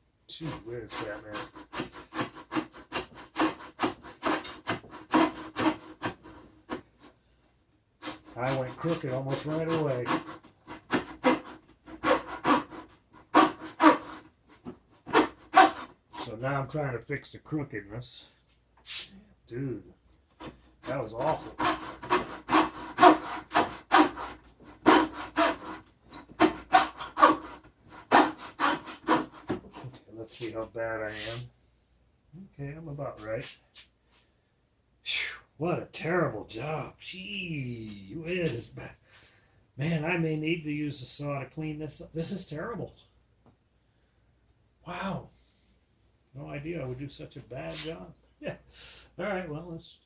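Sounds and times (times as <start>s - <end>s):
hacksaw cutting wood: 0.5s - 7.0s, 8.0s - 16.3s, 20.4s - 30.0s.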